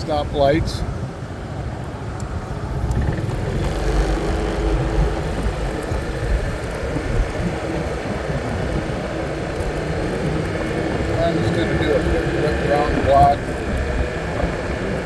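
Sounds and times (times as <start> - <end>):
scooter engine hum: 0.0 - 15.0
wind and road rumble: 0.0 - 15.0.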